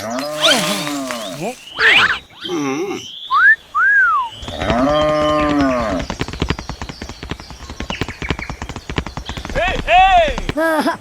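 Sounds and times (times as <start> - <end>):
fast run of clicks: 0.0 - 1.8
squeaky calls: 0.2 - 1.7.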